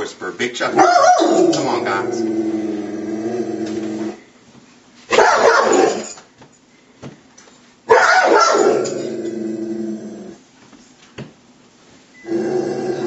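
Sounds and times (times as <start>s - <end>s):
dog barking: 0.7s - 1.6s, 5.1s - 6.1s, 7.9s - 8.9s.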